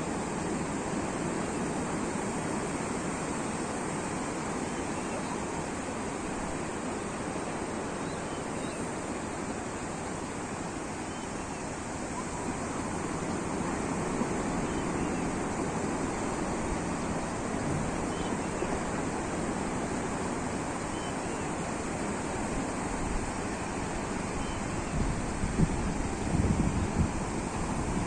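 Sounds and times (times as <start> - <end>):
sea waves washing onto shore: 8.8 - 28.0.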